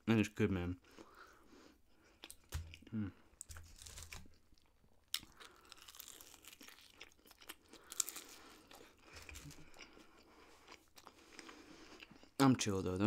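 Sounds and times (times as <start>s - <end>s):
crunching of crispy food: 2.1s - 12.4s.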